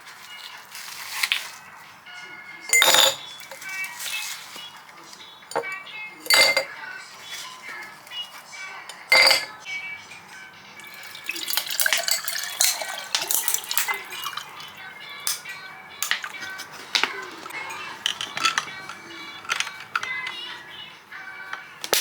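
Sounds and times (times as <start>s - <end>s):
background music: 0.0s - 22.0s
cutlery clinking against dishes: 2.7s - 4.1s, 5.5s - 6.8s, 8.9s - 10.3s, 11.1s - 14.5s, 15.2s - 20.5s.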